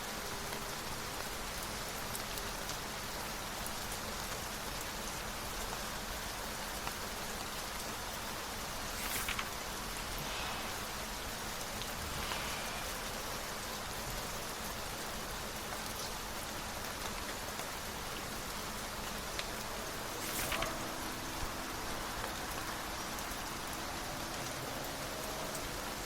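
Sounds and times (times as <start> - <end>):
steady rain falling: 0.0 - 26.0
brief rustles: 8.7 - 13.3, 20.1 - 21.2.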